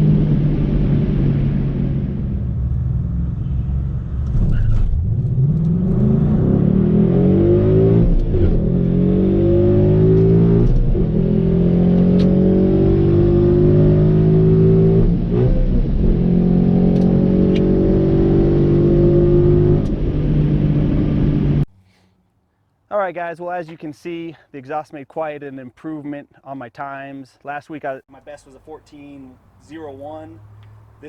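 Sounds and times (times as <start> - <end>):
car engine at full throttle: 0.0 - 21.7.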